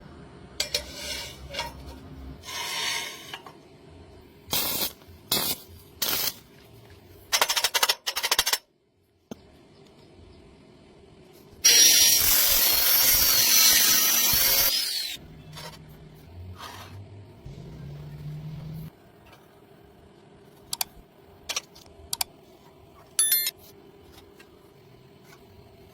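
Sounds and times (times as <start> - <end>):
metal scraping: 0.6 - 3.5
metalworking tool whine: 11.6 - 15.8
low hum: 15.2 - 25.9.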